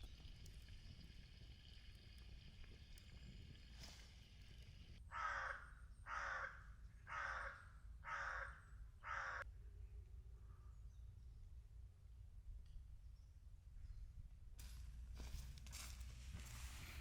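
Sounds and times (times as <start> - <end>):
crow cawing: 5.1 - 9.4.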